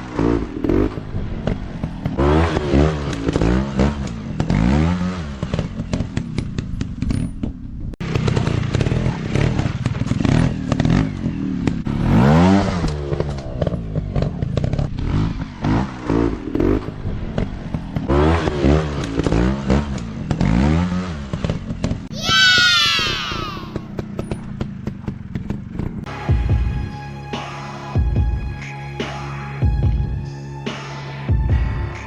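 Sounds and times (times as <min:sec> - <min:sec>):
dirt bike engine revving: 0:00.0 - 0:07.1, 0:08.0 - 0:26.0.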